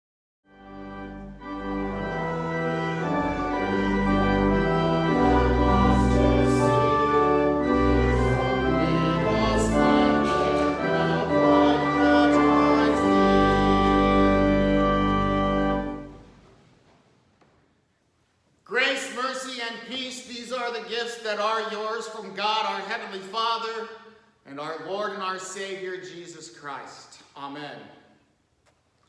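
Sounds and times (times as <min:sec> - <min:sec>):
organ playing chords: 0:00.5 - 0:16.4.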